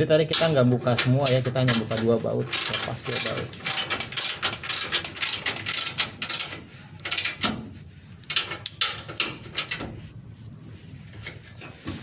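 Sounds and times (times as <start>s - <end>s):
ratchet wrench clicking: 2.5s - 2.8s, 3.6s - 7.5s.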